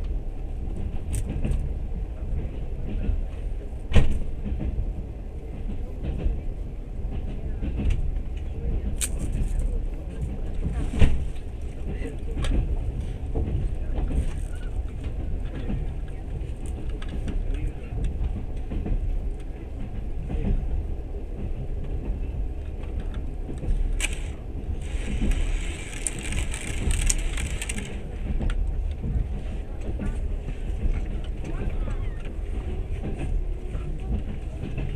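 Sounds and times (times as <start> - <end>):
train rumbling on rails: 0.0 - 34.9
faint clicks: 22.6 - 29.0.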